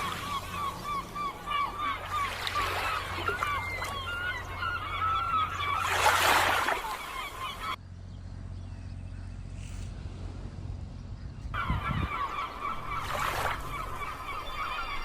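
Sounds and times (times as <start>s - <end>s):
birds honking: 0.0s - 7.8s, 11.6s - 15.0s.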